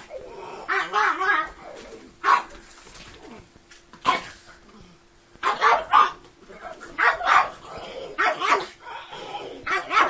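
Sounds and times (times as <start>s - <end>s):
dog bark-growl: 0.0s - 2.6s, 4.0s - 4.4s, 5.4s - 10.0s
small dog barking: 0.7s - 1.5s, 2.2s - 2.6s, 5.4s - 8.8s, 9.6s - 10.0s.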